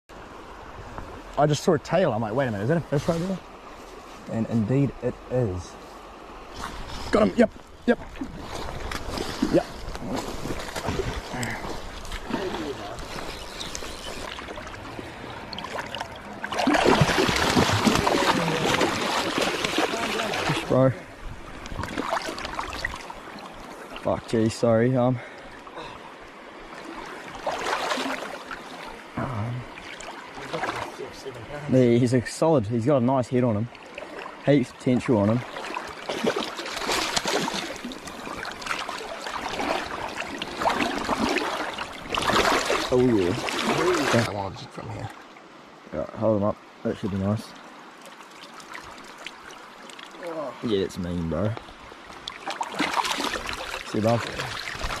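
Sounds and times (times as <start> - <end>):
creek water splashing: 0.1 - 55.0
flowing water rushing: 0.1 - 55.0
water splashing from thrashing fish: 8.2 - 13.3, 15.4 - 20.7, 21.7 - 23.3, 26.8 - 28.7, 35.4 - 44.3, 52.2 - 55.0.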